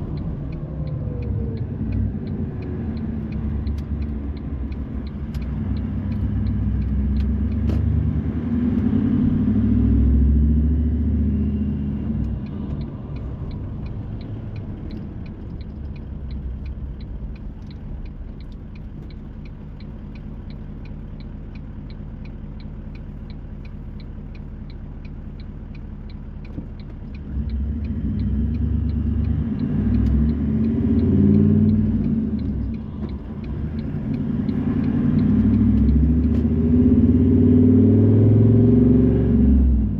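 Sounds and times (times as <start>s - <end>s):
faint regular ticking: 0.0s - 7.7s, 12.0s - 36.5s
car road and engine rumble: 0.0s - 39.9s.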